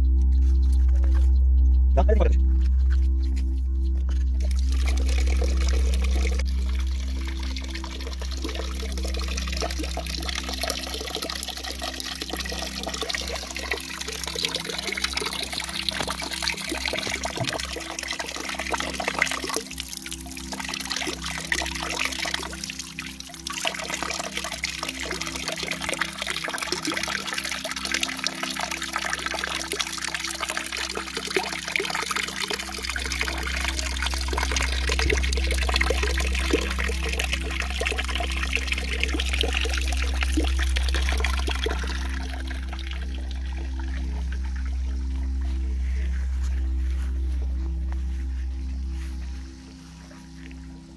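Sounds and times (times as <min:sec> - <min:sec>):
low hum: 0:00.0 - 0:50.9
fountain water splashing: 0:04.5 - 0:45.2.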